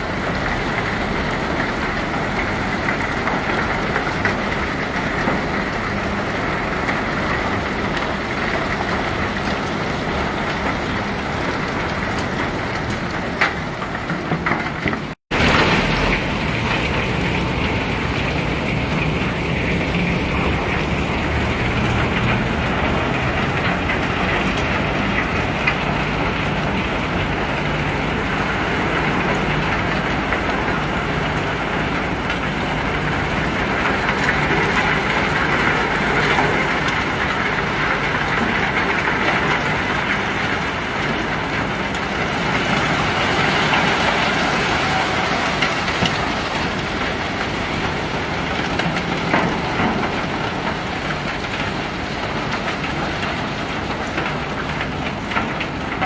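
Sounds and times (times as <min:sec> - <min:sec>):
machinery humming: 0:15.3 - 0:51.6.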